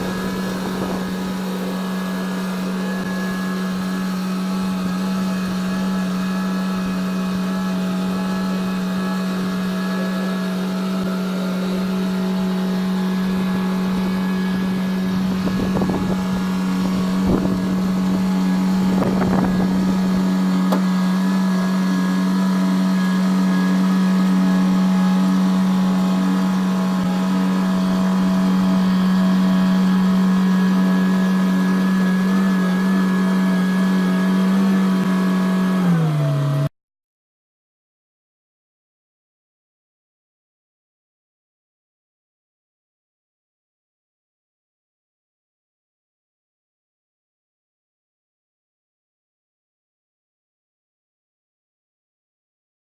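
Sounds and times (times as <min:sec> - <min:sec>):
construction vehicle engine humming: 0:00.0 - 0:22.3, 0:23.2 - 0:33.0.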